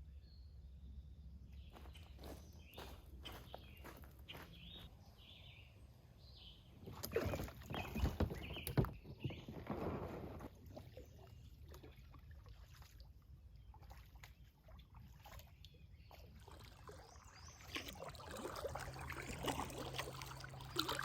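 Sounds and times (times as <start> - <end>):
kayak paddle dipping in water: 6.8 - 21.0
water dripping and trickling: 10.7 - 21.0.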